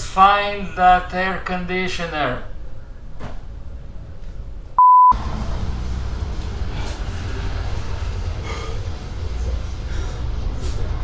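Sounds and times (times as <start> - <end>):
low background hum: 0.0 - 11.0
censor bleep: 4.8 - 5.2.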